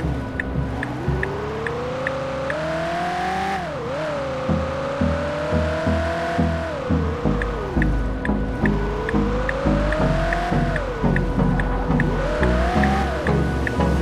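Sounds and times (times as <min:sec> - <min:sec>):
car engine accelerating: 0:00.0 - 0:14.0
background music beat: 0:05.0 - 0:14.0.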